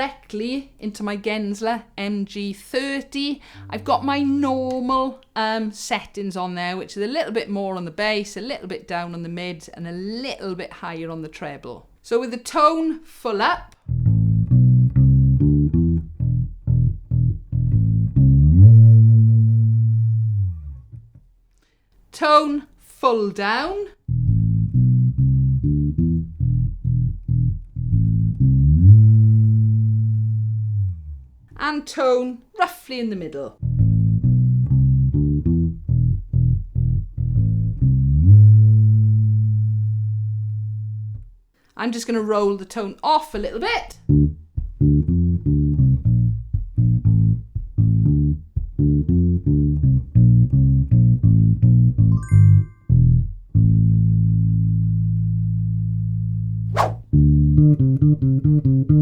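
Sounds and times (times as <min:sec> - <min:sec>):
plucked bass notes: 0:03.5 - 0:05.0, 0:13.8 - 0:21.3, 0:24.1 - 0:31.5, 0:33.6 - 0:41.4, 0:44.0 - 0:52.1, 0:57.1 - 0:59.0.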